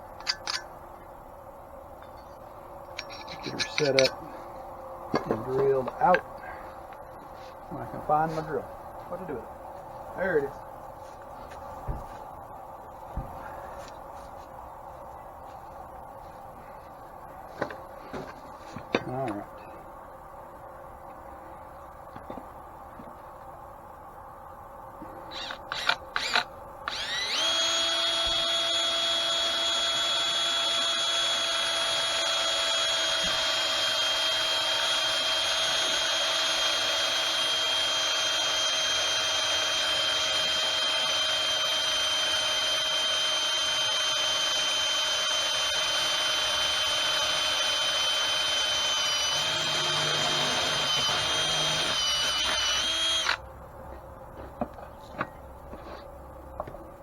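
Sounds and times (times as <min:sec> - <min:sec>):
electric drill whining: 0:25.3 - 0:53.4.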